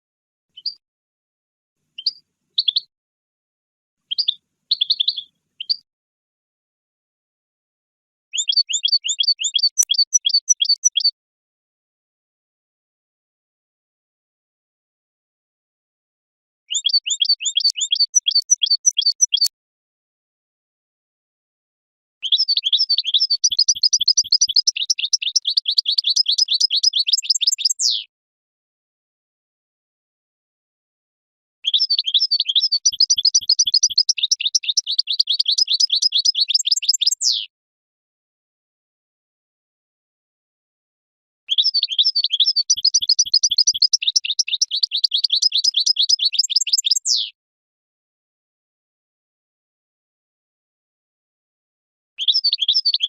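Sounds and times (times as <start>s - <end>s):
goldfinch twittering song: 0.6s - 0.8s, 2.0s - 2.9s, 4.1s - 5.8s, 8.3s - 11.1s, 16.7s - 19.5s, 22.2s - 28.0s, 31.6s - 37.5s, 41.5s - 47.3s, 52.2s - 53.0s.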